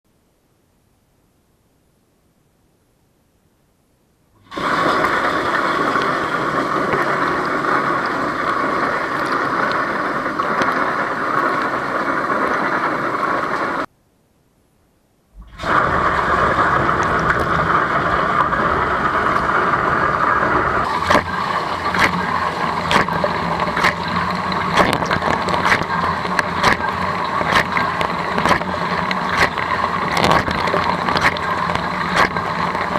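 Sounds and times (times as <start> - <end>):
dishwasher water spraying: 20.8 - 32.9
sharp ticks and knocks: 21.1 - 32.9.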